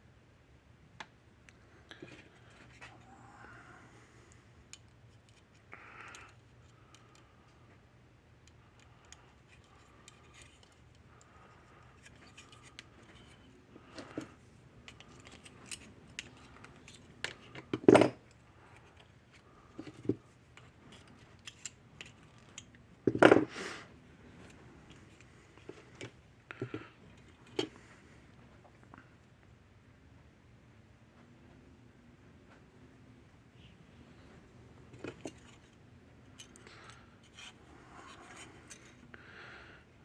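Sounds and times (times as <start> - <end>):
light clicks and snips: 4.3 - 22.8.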